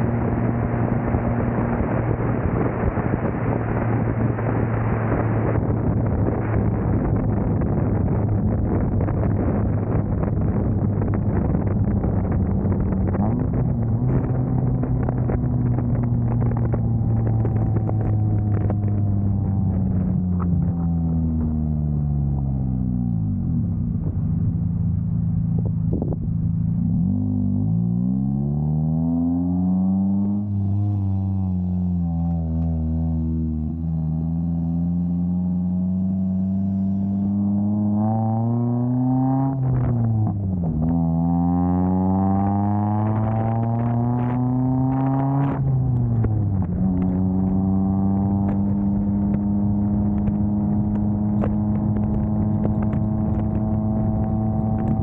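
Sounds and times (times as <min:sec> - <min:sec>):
car engine running: 0:00.0 - 0:27.0, 0:42.8 - 0:55.0.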